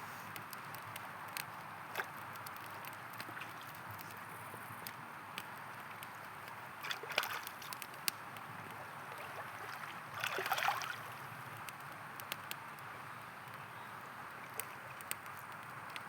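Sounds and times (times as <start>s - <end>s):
campfire crackling: 0.0s - 16.0s
river flowing: 8.9s - 11.2s.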